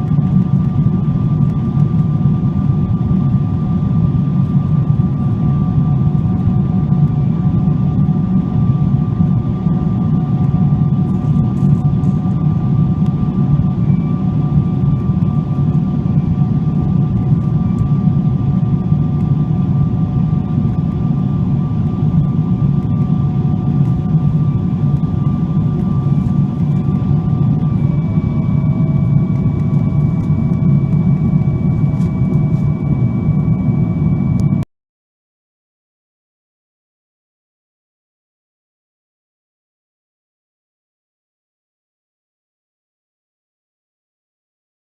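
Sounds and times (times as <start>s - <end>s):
airplane cabin rumble: 0.0s - 34.6s
jet engine whines: 0.0s - 34.6s.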